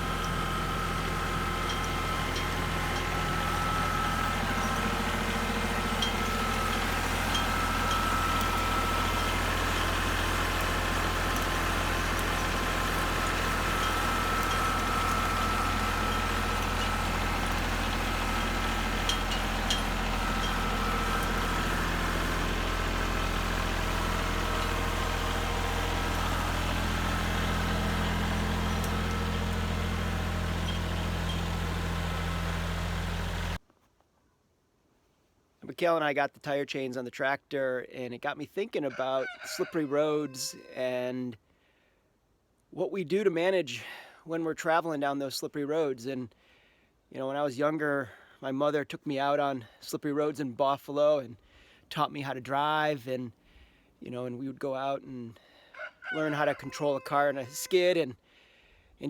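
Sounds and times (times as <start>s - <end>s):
tractor engine running: 0.0s - 33.6s.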